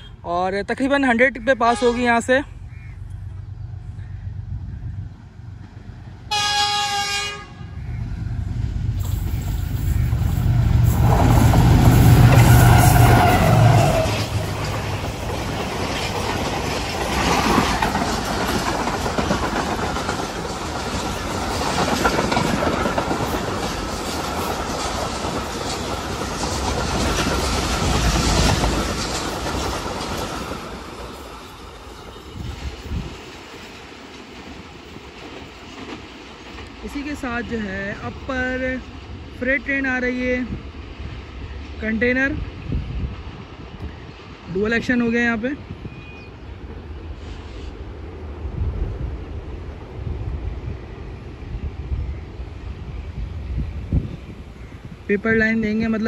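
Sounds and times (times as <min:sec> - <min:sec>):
diesel locomotive engine rumble: 0:00.0 - 0:56.0
train horn blast: 0:01.6 - 0:02.3, 0:06.3 - 0:07.9, 0:12.4 - 0:14.3
wheels clacking over rails: 0:10.4 - 0:32.2.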